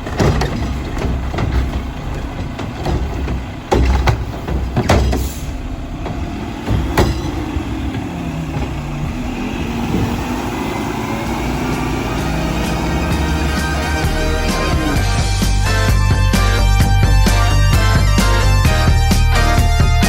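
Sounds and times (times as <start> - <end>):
sharp metal clanks: 0.0 - 9.4
garbage truck engine running: 0.0 - 20.0.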